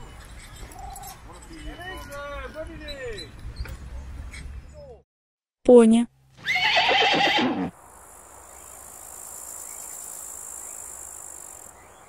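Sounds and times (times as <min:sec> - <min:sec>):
pony whinnying: 0:06.4 - 0:07.7.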